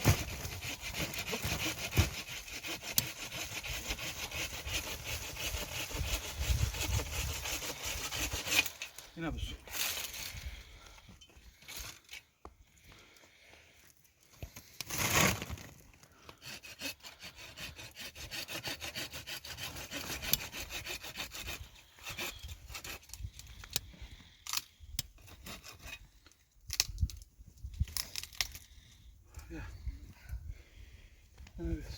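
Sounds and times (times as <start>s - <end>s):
hand saw cutting wood: 0.0s - 9.0s, 16.3s - 23.9s, 25.2s - 26.1s.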